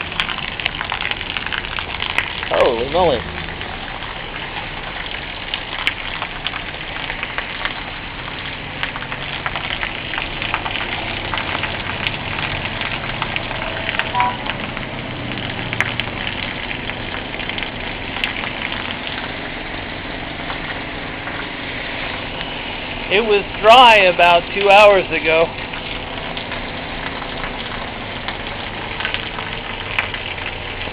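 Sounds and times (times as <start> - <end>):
heavy rain on hard surfaces: 0.0 - 30.9.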